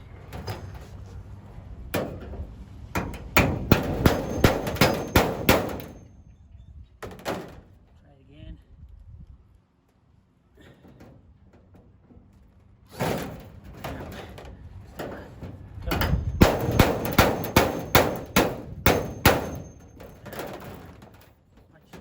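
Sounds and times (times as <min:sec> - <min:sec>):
sharp metallic clanks: 0:03.0 - 0:06.2, 0:15.9 - 0:21.0.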